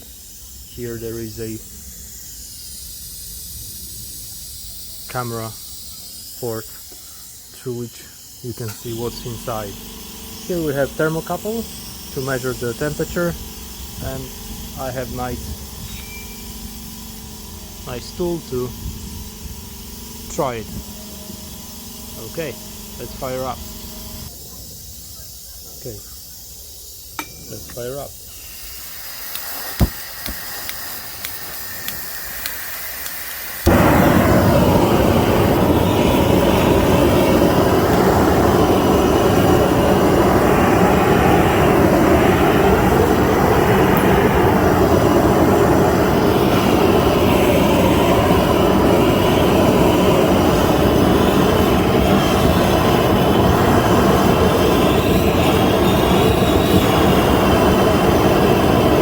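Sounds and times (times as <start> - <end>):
faint gas hiss: 0.0 - 9.8, 25.8 - 59.0
torch flame rushing: 7.2 - 16.0, 16.6 - 24.5, 27.3 - 59.0
torch igniter clicks: 27.1 - 39.9, 42.2 - 45.2.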